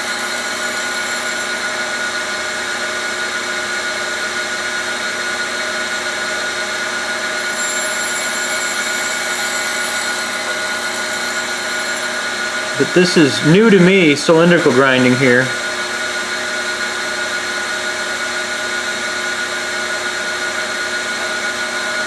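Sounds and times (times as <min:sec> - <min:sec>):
grinder whirring: 0:00.0 - 0:03.7, 0:07.0 - 0:15.9.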